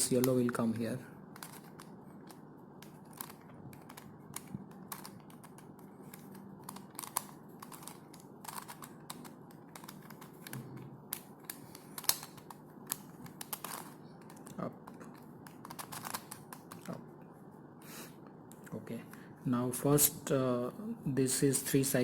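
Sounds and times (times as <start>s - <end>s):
plastic puzzle clicking: 1.4s - 17.0s.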